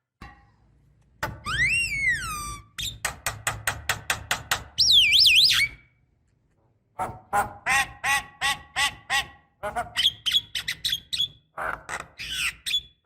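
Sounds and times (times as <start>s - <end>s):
myna whistling and clicking: 4.8s - 5.9s.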